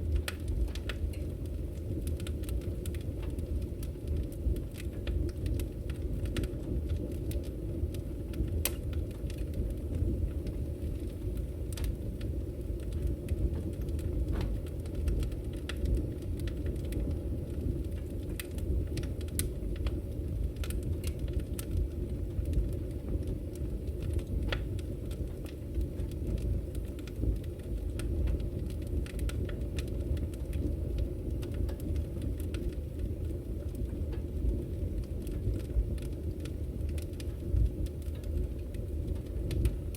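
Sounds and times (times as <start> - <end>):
low fire rumble: 0.0 - 39.9
wood fire crackling: 0.0 - 39.9.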